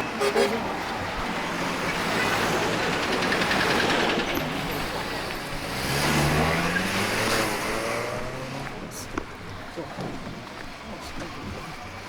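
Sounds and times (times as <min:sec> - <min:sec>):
vehicle engine speeding up: 0:01.6 - 0:09.0.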